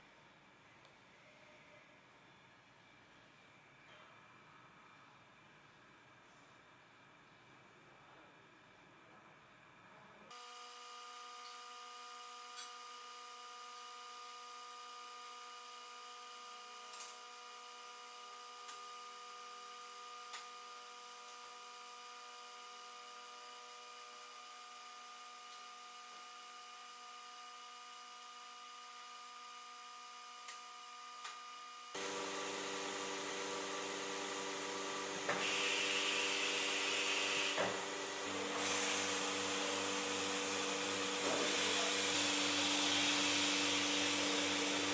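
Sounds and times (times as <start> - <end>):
welding machine whining hum: 10.3 - 44.9.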